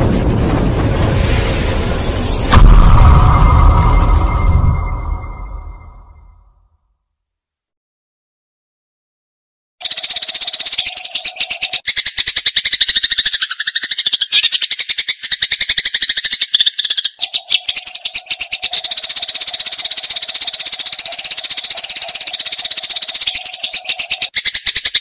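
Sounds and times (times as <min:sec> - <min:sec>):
sparrow chattering harshly: 0:09.8 - 0:25.0.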